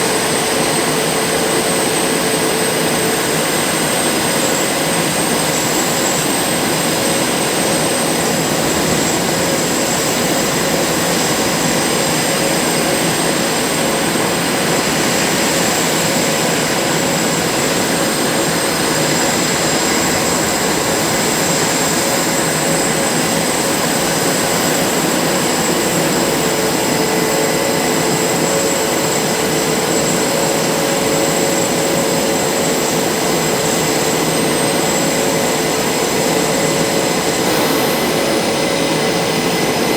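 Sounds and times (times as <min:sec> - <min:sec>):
high turbine whine: 0:00.0 - 0:39.9
jet engines running: 0:00.0 - 0:39.9
lower engine tone: 0:37.2 - 0:39.9.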